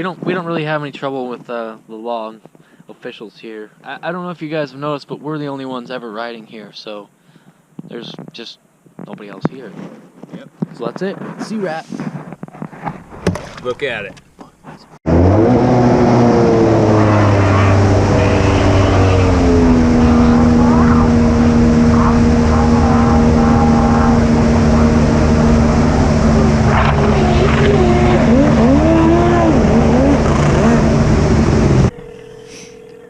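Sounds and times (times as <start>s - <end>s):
jet ski engine running loud: 15.1s - 31.9s.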